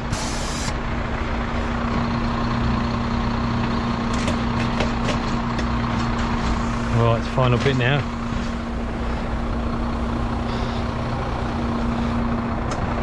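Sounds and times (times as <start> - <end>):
air hiss: 0.0 - 0.8
diesel engine running: 0.0 - 13.0.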